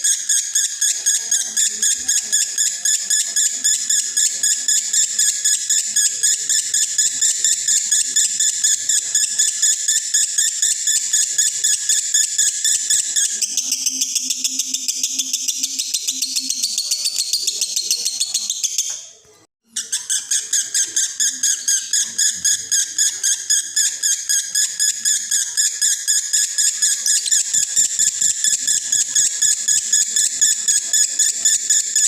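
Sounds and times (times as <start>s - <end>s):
lovebird twittering: 0.1s - 19.1s, 19.7s - 32.0s.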